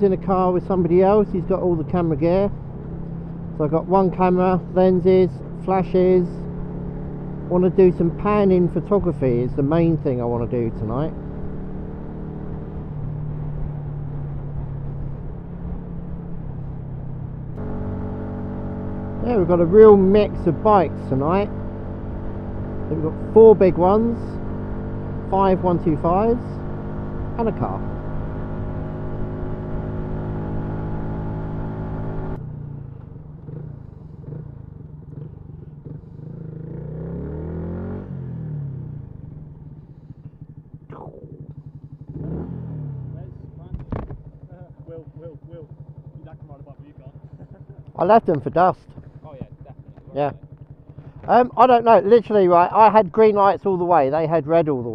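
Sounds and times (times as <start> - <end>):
motorcycle engine cruising: 0.0 - 54.9
road rumble: 0.0 - 54.9
wind: 0.0 - 54.9.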